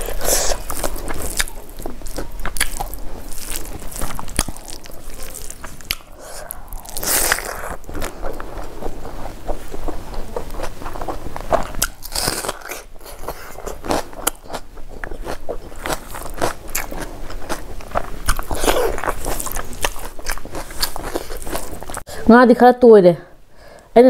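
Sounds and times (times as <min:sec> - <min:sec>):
person chewing crunchy food: 0:00.0 - 0:22.1.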